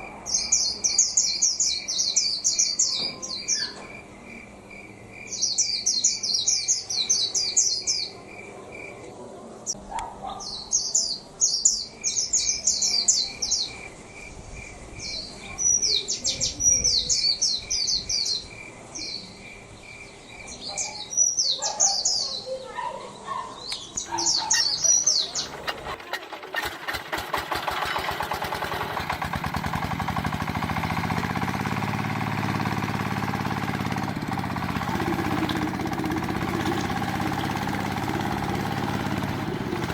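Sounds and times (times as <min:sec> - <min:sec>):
birds chirping: 0:00.0 - 0:39.9
small motor ticking: 0:24.9 - 0:39.9.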